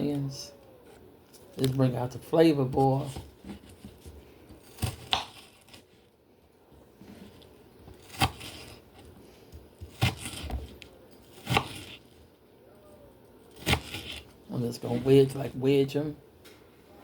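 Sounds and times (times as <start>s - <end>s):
knife slicing onion: 2.5s - 5.9s, 7.2s - 12.1s, 13.5s - 15.5s.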